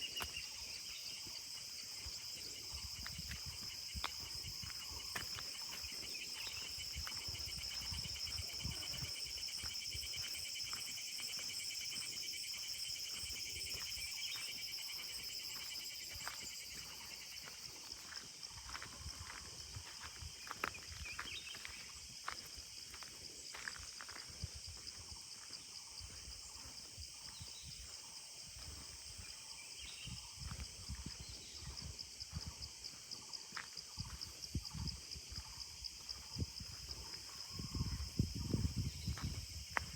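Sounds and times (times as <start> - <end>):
insects trilling: 0.0 - 39.9
footsteps walking: 1.2 - 27.4.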